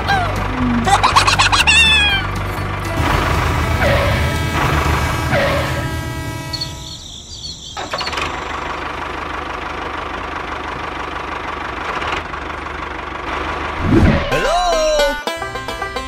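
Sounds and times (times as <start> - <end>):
music: 0.0 - 5.0, 14.9 - 16.0
motor droning: 0.0 - 7.0
rising tone: 0.4 - 2.4.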